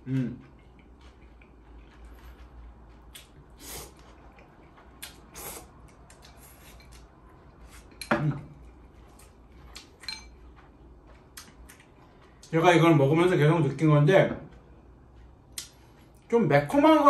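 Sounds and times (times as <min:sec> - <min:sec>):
low voiced sound from eater: 0:00.0 - 0:00.5.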